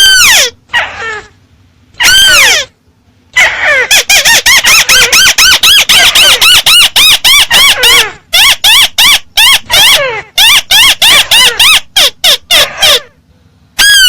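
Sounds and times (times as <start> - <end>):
bird squealing calls: 0.0 - 1.3, 2.0 - 2.7, 3.4 - 13.2, 13.8 - 14.0.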